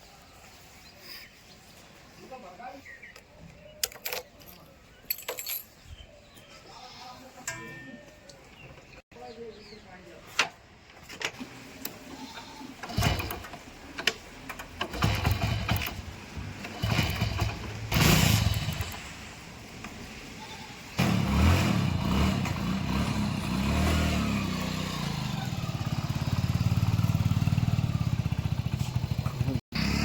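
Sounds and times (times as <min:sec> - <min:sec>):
diesel engine starting and running: 0:12.8 - 0:19.3, 0:21.0 - 0:30.0.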